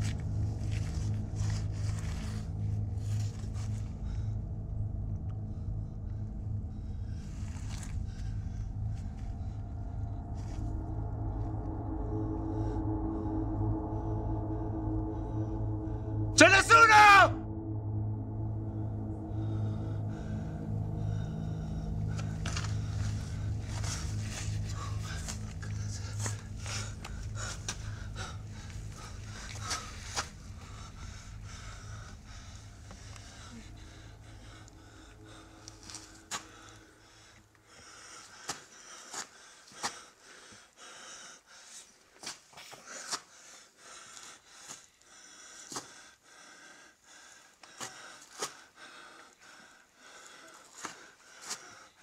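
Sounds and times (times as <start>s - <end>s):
rustling and breathy noises: 0.0s - 16.3s, 18.5s - 52.0s
low steady hum: 0.0s - 38.3s.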